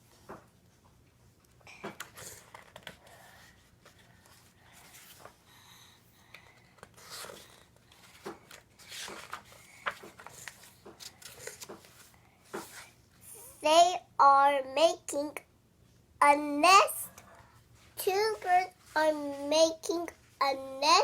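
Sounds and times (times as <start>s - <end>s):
paper pages rustling: 2.1s - 5.4s, 6.4s - 13.0s.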